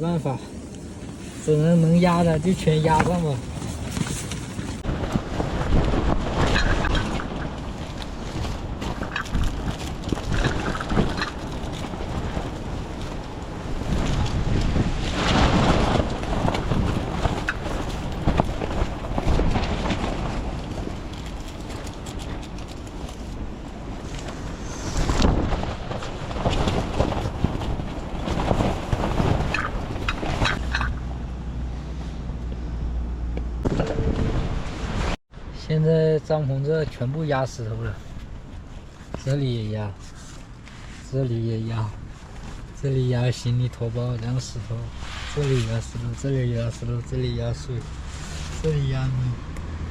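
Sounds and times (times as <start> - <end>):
wind buffeting microphone: 0.2 - 35.2.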